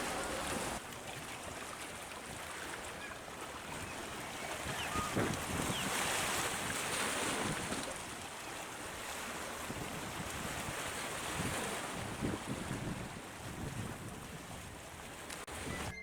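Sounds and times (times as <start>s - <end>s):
water and waves: 0.0s - 16.0s
wind buffeting microphone: 9.6s - 15.9s.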